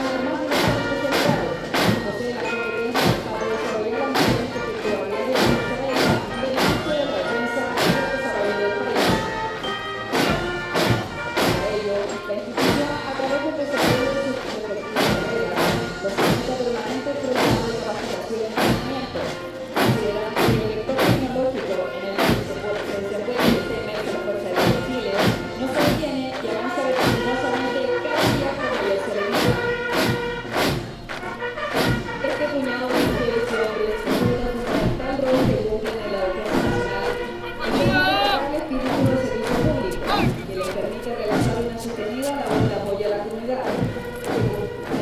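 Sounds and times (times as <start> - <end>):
brass band playing a march: 0.0 - 45.0
bass drum beats: 33.9 - 45.0.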